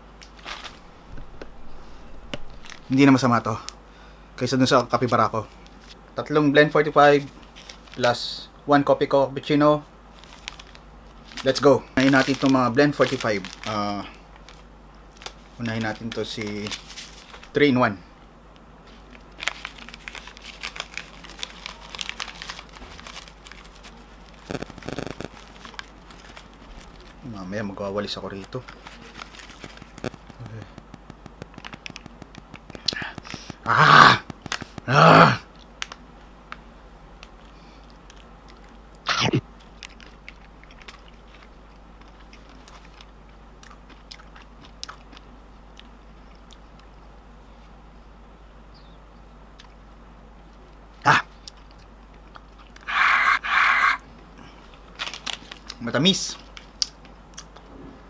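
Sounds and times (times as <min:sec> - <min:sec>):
plastic sachet crinkling: 0:00.2 - 0:03.3, 0:10.1 - 0:17.6, 0:18.9 - 0:34.9, 0:54.7 - 0:57.0
mouth clicks and smacks: 0:29.6 - 0:34.9
person chewing: 0:39.6 - 0:47.0, 0:51.4 - 0:54.0.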